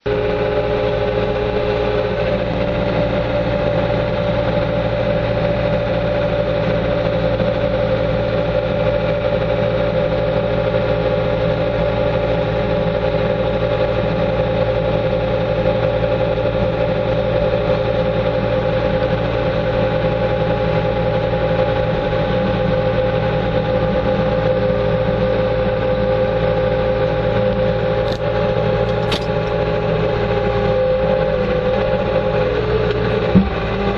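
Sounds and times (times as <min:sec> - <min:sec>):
loader engine running: 0:00.0 - 0:33.9.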